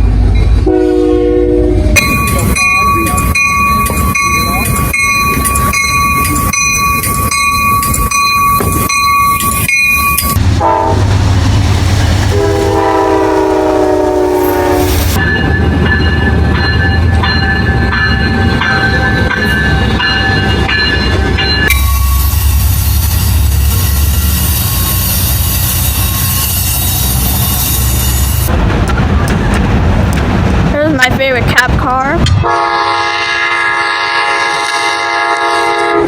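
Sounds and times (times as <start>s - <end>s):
train rumbling past: 0.0s - 36.0s
locomotive horn: 0.6s - 2.2s, 10.4s - 11.2s, 12.2s - 15.2s, 32.4s - 36.0s
crossing bell ringing: 2.0s - 10.8s, 12.8s - 28.5s
high squealing of wheels: 21.7s - 28.5s.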